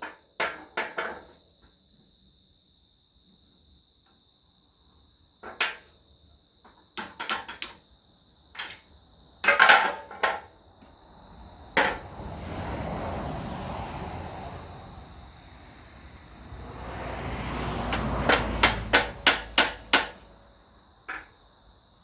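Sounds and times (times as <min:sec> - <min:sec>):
hammer clanking on metal: 0:18.0 - 0:20.2.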